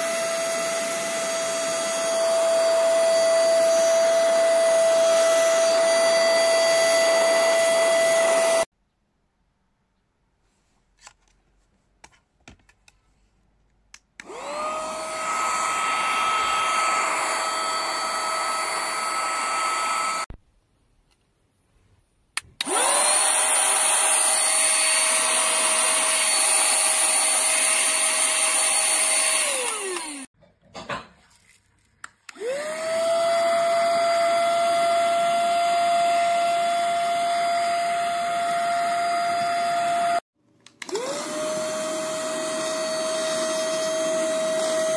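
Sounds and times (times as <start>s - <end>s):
mini vacuum motor whine: 14.3s - 20.3s, 22.6s - 30.3s, 32.3s - 40.2s, 40.9s - 44.9s.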